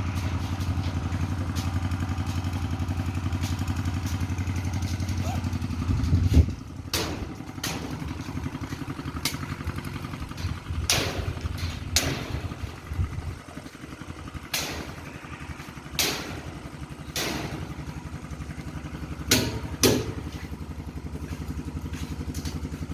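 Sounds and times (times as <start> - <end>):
small engine running: 0.0 - 22.9.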